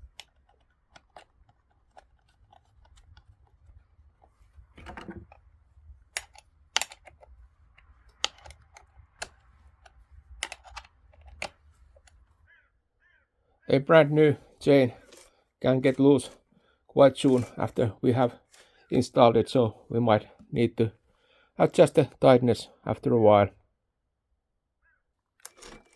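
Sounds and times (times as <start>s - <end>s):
wrench clicking on metal nuts: 6.2s - 7.2s.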